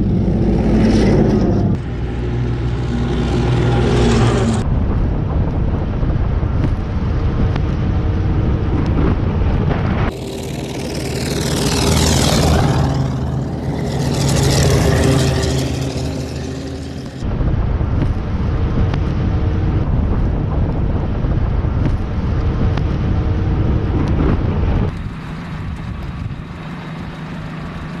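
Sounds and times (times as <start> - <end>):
heavy vehicle engine: 0.0 - 28.0
tyre and road noise: 0.0 - 28.0.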